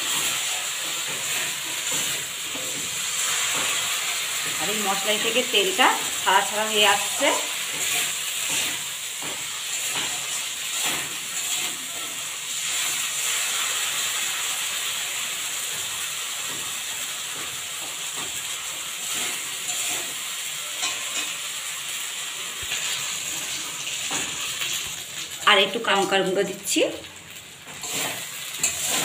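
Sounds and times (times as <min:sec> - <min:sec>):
steel spatula scraping pan: 0:00.0 - 0:05.5, 0:06.8 - 0:13.6, 0:19.0 - 0:21.4, 0:27.7 - 0:29.0
spice paste sizzling in oil: 0:00.0 - 0:29.0.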